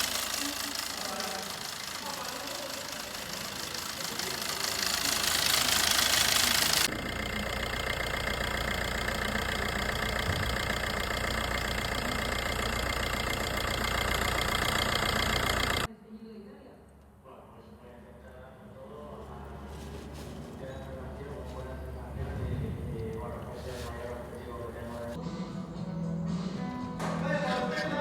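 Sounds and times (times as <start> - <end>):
diesel engine running: 0.0 - 15.9, 19.3 - 25.2.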